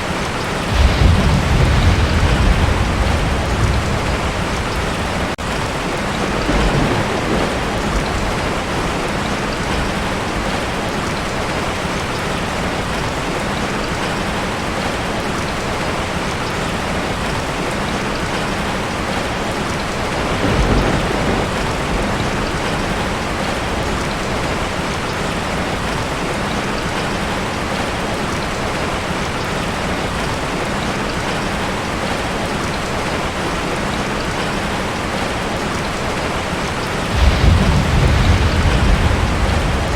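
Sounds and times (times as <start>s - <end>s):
heavy rain on a tin roof: 0.0s - 39.9s
thunder rolling: 0.6s - 10.7s, 20.0s - 24.6s, 37.0s - 39.9s.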